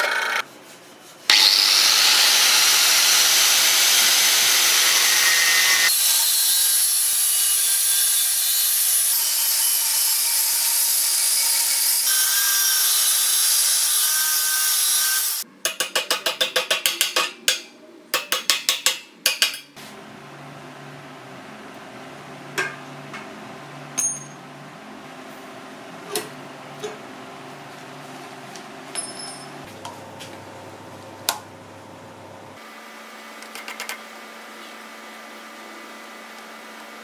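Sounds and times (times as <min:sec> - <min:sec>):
clinks and taps: 0:15.7 - 0:19.8.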